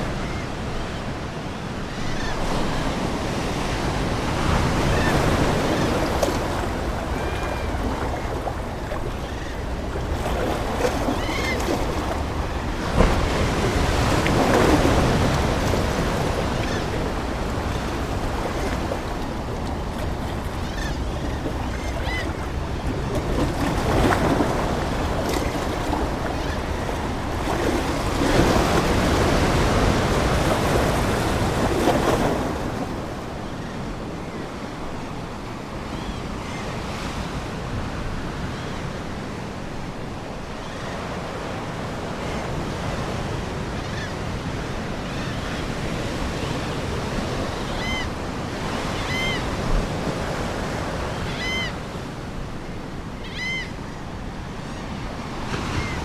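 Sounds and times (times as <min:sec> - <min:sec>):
ocean waves washing on shore: 0:00.0 - 0:56.0
seagulls calling: 0:04.6 - 0:34.5, 0:45.1 - 0:49.6, 0:51.1 - 0:52.1, 0:53.1 - 0:56.0.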